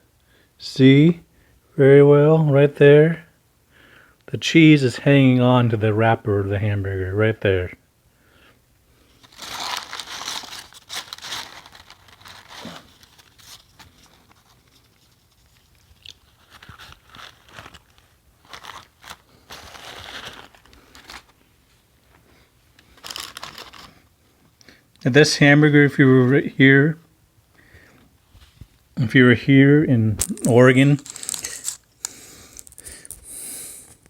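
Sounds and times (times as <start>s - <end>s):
wrapper crinkling: 9.2s - 24.2s, 30.2s - 33.3s.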